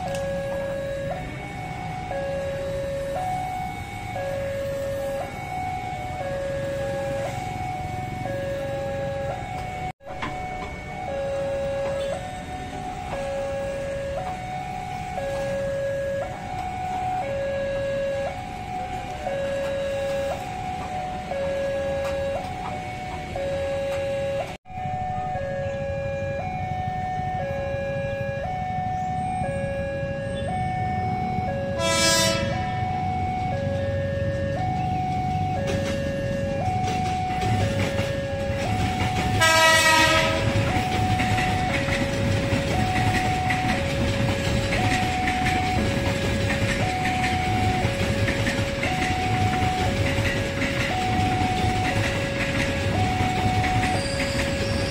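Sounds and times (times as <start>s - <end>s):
two-tone siren: 0.0s - 54.9s
horn blast: 31.8s - 32.8s, 39.4s - 40.7s.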